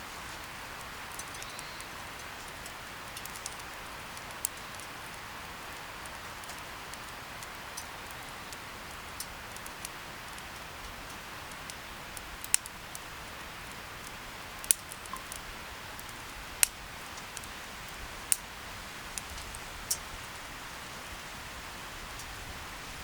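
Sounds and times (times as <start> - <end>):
campfire crackling: 0.0 - 23.0
sharp fire pops: 0.4 - 13.0, 13.6 - 17.6.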